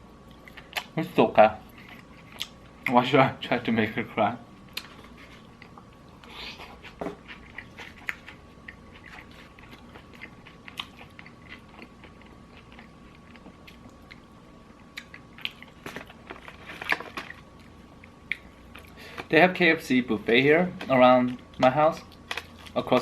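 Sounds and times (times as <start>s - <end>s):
faint steady hum: 0.0s - 23.0s
chewing crispy fried chicken: 4.6s - 19.3s.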